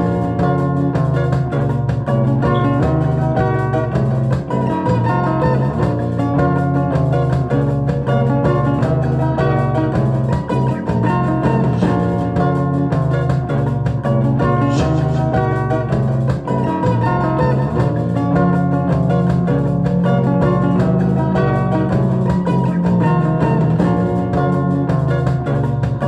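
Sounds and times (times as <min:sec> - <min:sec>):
plucked guitar melody: 0:00.0 - 0:26.0
steady low instrumental part: 0:00.0 - 0:26.0.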